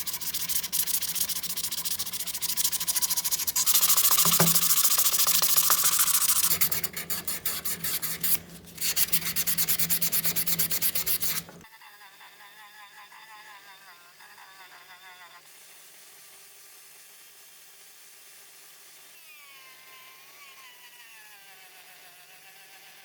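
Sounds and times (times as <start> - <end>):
abrasive rubbing on brass: 0.0 - 11.6.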